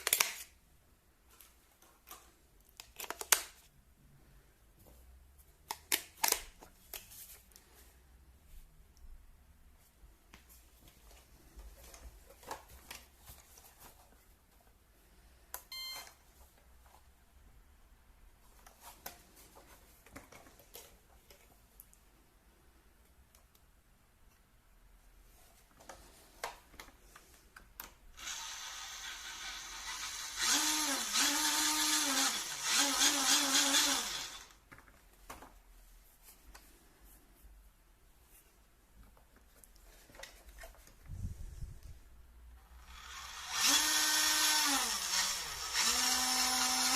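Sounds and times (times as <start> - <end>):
short electronic beep: 15.7 - 16.1
electric motors whining: 28.2 - 34.5, 42.9 - 46.9.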